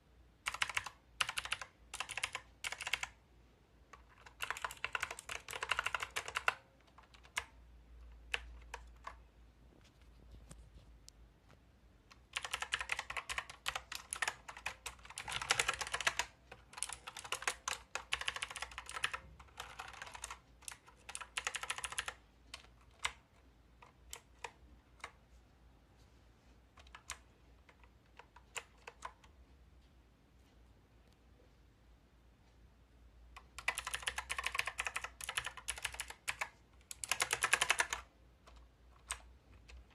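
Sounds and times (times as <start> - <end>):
mechanical keyboard typing: 0.4 - 3.2, 3.9 - 9.2, 12.1 - 25.2, 26.8 - 29.3, 33.4 - 39.9.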